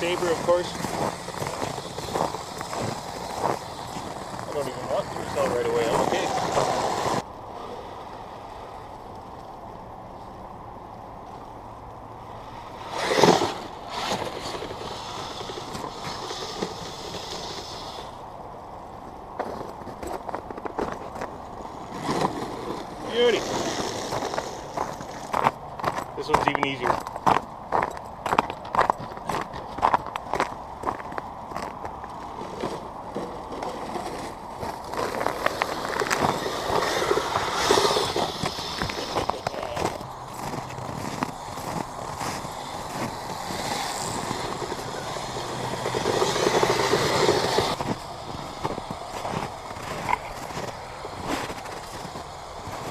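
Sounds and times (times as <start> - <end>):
toy vehicle motors whirring: 0.0 - 7.2, 12.8 - 18.2, 21.9 - 25.3, 32.4 - 52.9
rc snowcat driving over snow: 0.0 - 52.9
faint high whine: 30.7 - 52.9.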